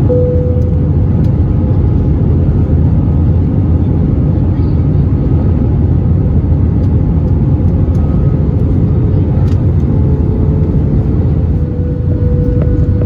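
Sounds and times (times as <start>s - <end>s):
faint steady hum: 0.0s - 1.8s
aircraft cabin engine roar: 0.0s - 13.0s.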